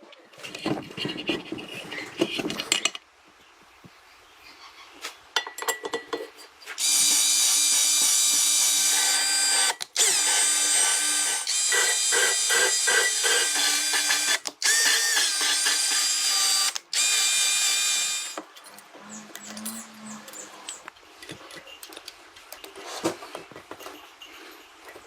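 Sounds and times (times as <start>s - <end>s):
handheld power tool running: 6.8s - 18.4s
knocks and clatter of handling: 21.1s - 25.0s.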